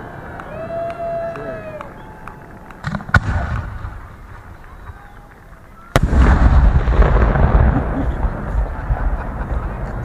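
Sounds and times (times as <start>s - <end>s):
rumble and crackle of bursts: 1.8s - 10.0s
fireworks bangs: 2.1s - 10.0s.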